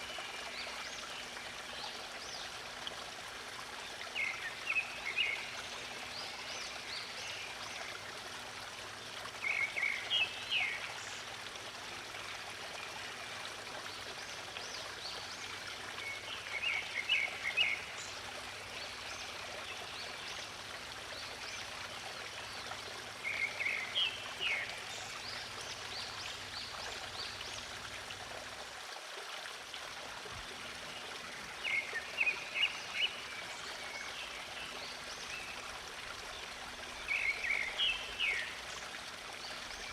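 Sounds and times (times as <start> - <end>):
songbird singing: 36.9 - 38.7.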